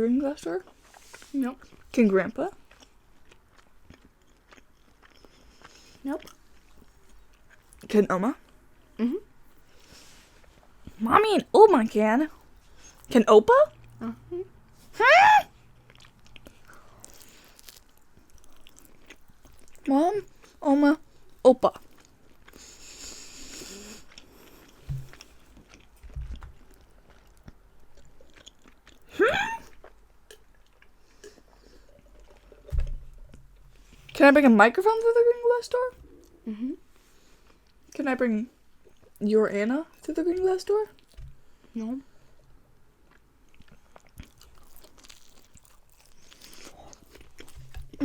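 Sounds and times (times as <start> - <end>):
biting and chewing pizza: 0.6 - 8.6, 15.7 - 31.6, 43.0 - 48.0
small thumps: 24.8 - 25.3.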